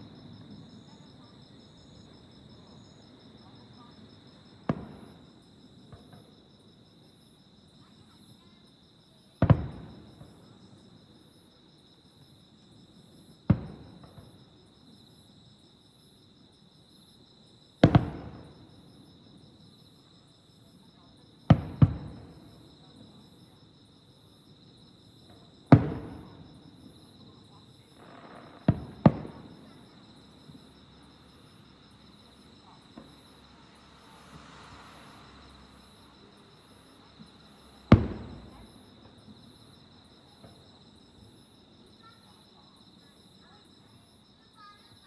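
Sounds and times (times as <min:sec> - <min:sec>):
insects trilling: 0:04.2 - 0:45.0
firework shells bursting: 0:37.7 - 0:39.0.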